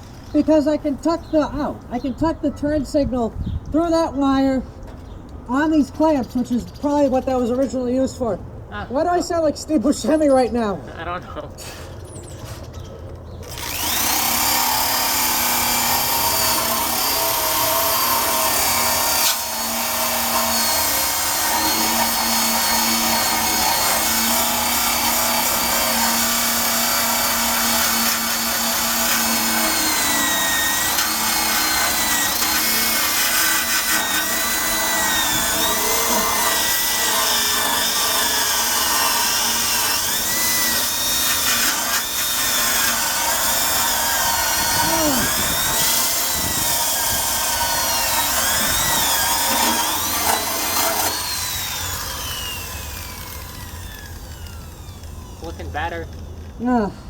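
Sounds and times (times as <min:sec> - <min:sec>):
electric drill wire brush on metal: 0:13.4 - 0:56.6.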